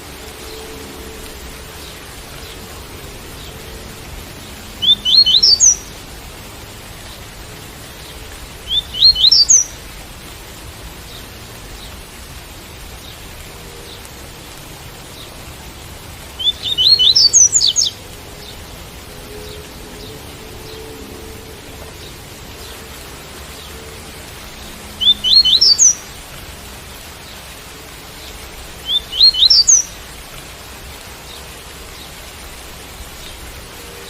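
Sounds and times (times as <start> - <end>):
rain hissing: 0.0 - 34.0
bird singing high notes: 4.8 - 5.9, 25.0 - 26.0.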